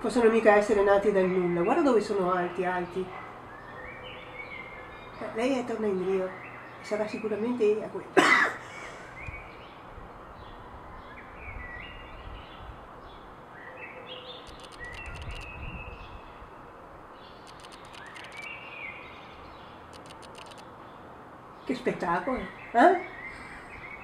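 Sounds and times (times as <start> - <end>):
songbirds calling: 0.0 - 24.0
rapid high ticks: 14.4 - 15.5, 17.4 - 18.5, 19.9 - 20.7.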